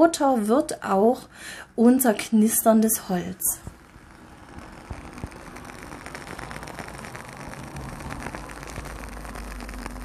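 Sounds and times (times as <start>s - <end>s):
candle wick crackling: 2.9s - 10.0s.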